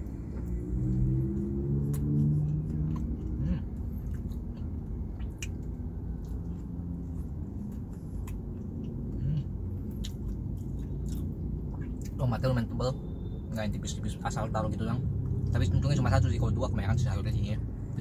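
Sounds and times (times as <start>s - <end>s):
steady low rumble: 0.0s - 18.0s
person chewing: 0.5s - 12.2s
wet mouth clicks and smacks: 4.0s - 6.7s, 9.8s - 12.2s.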